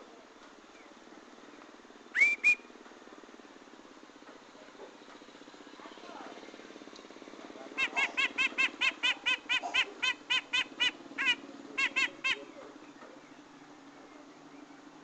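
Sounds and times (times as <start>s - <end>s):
steady low hum: 0.0s - 15.0s
bird calling rapid notes: 2.1s - 2.7s, 7.7s - 13.3s.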